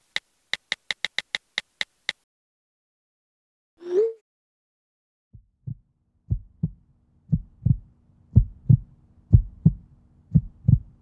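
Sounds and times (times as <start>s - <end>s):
faint steady hum: 5.4s - 11.0s
heartbeat thumps: 5.4s - 11.0s.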